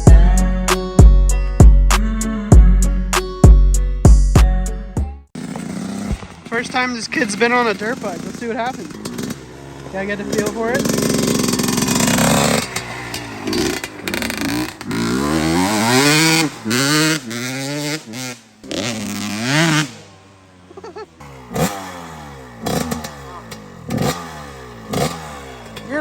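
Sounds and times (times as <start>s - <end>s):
dirt bike engine revving: 5.4s - 26.0s.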